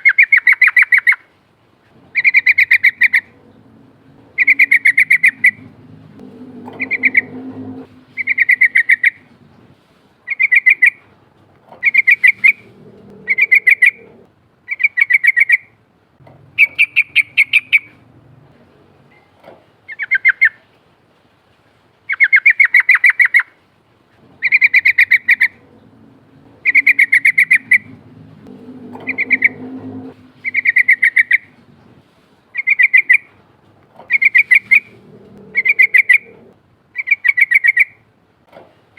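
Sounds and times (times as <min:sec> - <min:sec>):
bulbul chattering song: 0:04.2 - 0:09.3, 0:11.8 - 0:15.6, 0:16.5 - 0:18.0, 0:24.4 - 0:31.6, 0:34.1 - 0:38.0.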